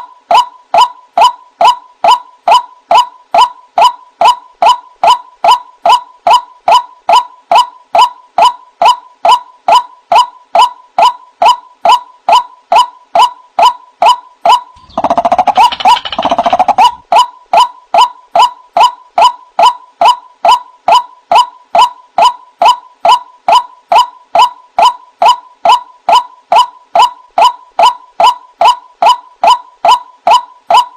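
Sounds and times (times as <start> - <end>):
waterhen calling: 14.8 - 17.0.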